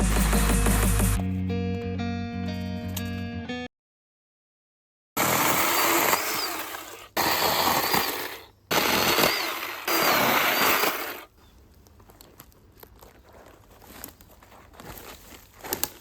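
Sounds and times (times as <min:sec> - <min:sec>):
power saw cutting wood: 0:05.2 - 0:11.3.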